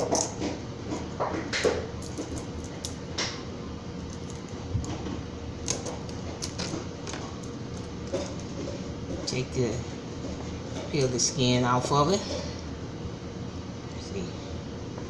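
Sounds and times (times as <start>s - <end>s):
kitchen items clicking and knocking: 0.0s - 0.6s
steady low hum: 0.0s - 15.0s.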